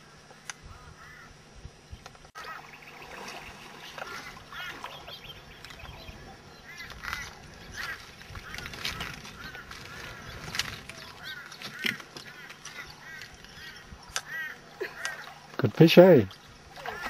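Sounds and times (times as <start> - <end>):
geese honking: 2.4 - 15.6, 16.8 - 17.0.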